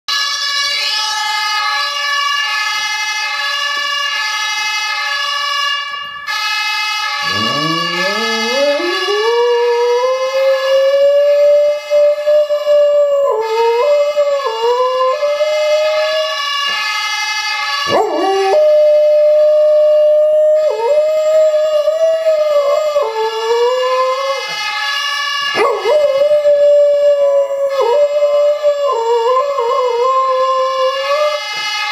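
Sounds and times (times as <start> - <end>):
siren from phone speaker: 0.1 - 31.9
dog howling: 7.2 - 16.4, 17.9 - 24.4, 25.6 - 31.5.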